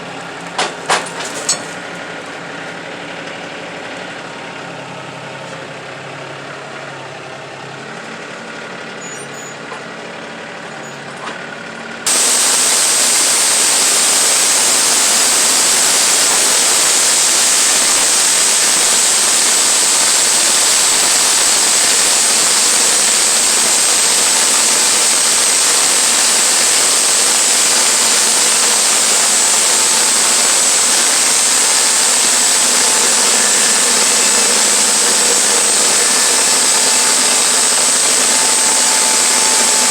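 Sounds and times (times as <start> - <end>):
sawmill running with high whine: 0.0 - 39.9
engine idling: 12.1 - 39.9.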